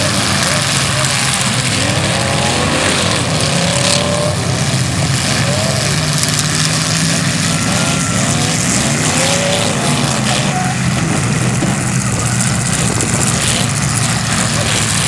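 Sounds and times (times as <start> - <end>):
car engines running loudly: 0.0 - 15.0
engine revs: 0.0 - 15.0.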